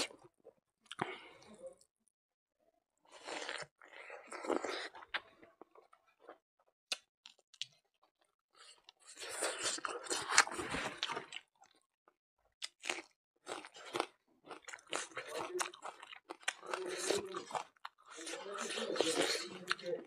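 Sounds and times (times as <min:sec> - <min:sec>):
chewing with mouth clicks: 0:12.6 - 0:20.0.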